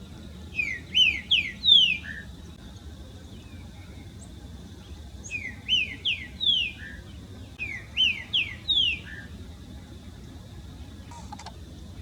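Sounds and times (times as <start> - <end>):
songbird whistling phrases: 0.6 - 2.3, 5.2 - 7.0, 7.6 - 9.3.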